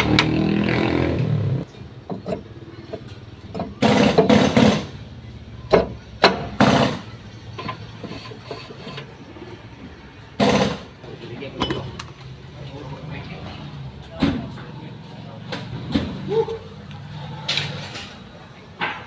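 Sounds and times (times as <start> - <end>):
hand tools knocking and scraping: 1.7 - 5.0, 5.7 - 9.4.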